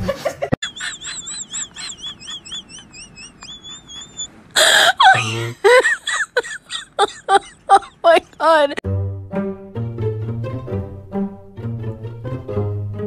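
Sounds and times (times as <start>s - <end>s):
people laughing: 0.0s - 8.4s.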